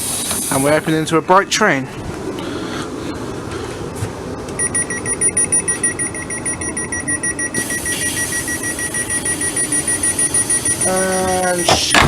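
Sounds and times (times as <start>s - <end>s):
train door warning beeps: 4.6s - 12.0s.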